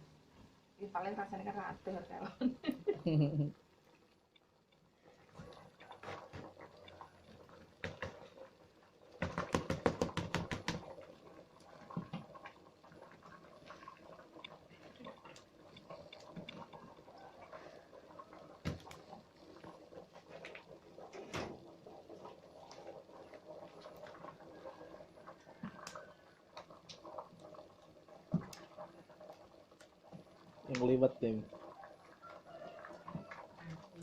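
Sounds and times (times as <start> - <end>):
fast sharp taps: 9.2 - 10.8.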